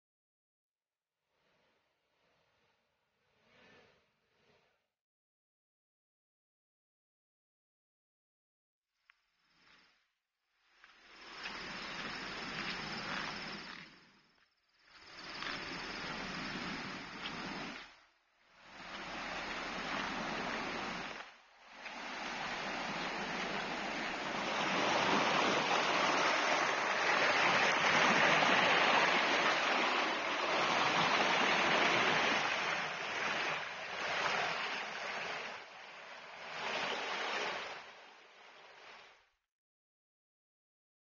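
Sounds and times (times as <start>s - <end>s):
river water rushing over rocks: 21.8s - 35.6s.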